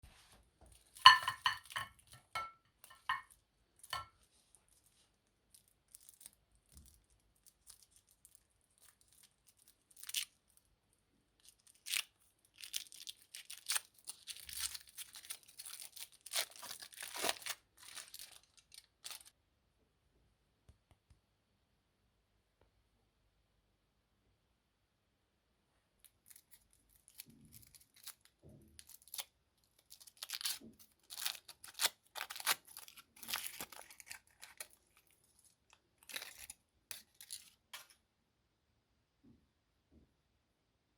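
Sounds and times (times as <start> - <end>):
foil wrappers crinkling and tearing: 4.7 - 10.6, 11.4 - 19.3, 26.2 - 37.9.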